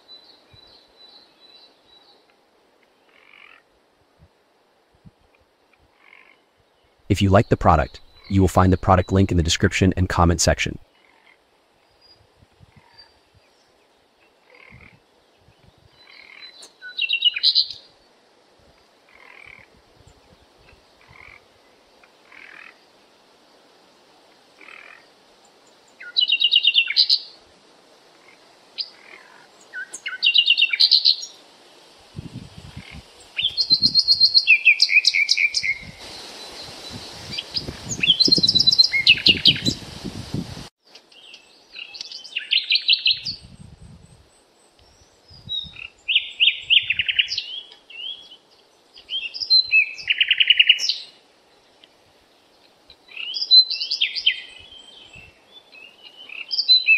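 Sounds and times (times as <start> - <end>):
birds chirping in fast trills: 33.3 - 39.8.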